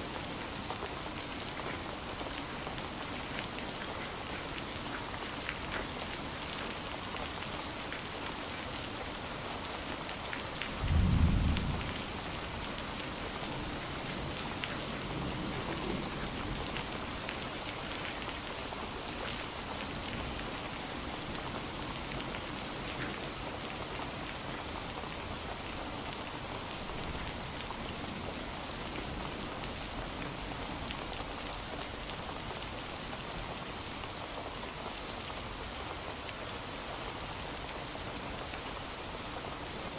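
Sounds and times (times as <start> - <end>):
steady rain: 0.0 - 39.9
thunder clap: 10.8 - 12.0
thunder rumble: 10.8 - 12.5.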